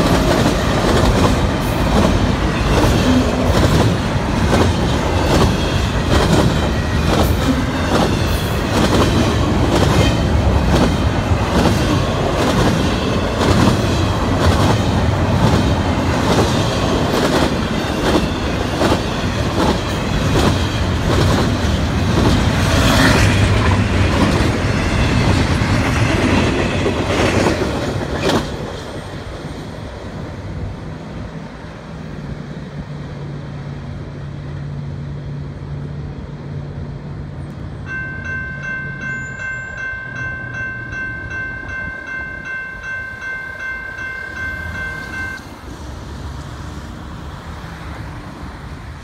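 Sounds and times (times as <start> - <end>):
freight train rumbling and clacking: 0.0 - 49.0
railroad crossing bell ringing: 4.8 - 8.9, 37.8 - 45.8.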